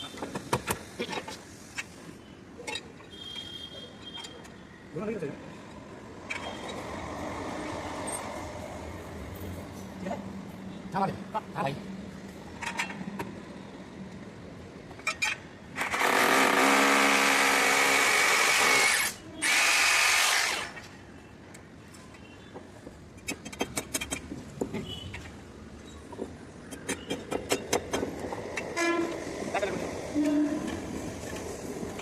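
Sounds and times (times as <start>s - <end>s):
power drill running: 15.8s - 20.8s.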